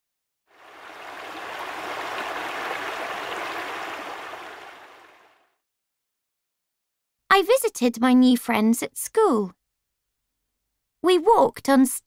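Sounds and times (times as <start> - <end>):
river water rushing: 0.6 - 5.3.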